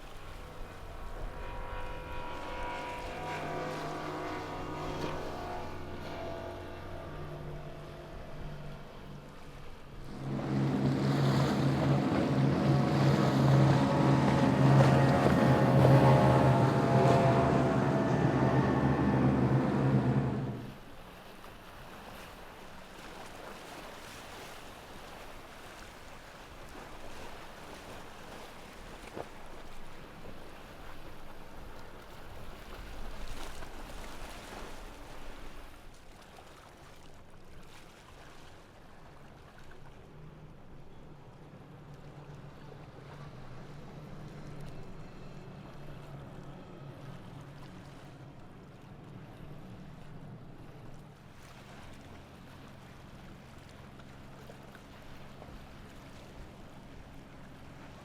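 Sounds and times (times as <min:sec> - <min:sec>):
faint water splashes: 0:00.0 - 0:58.0
motorboat engine passing: 0:00.0 - 0:58.0
wind: 0:00.0 - 0:58.0
water washing: 0:09.9 - 0:20.8.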